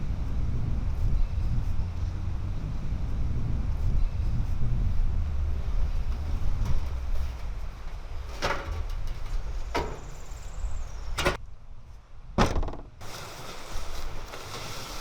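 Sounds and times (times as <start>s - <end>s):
wind rumble on microphone: 0.0s - 15.0s
sharp knocks: 12.4s - 13.0s.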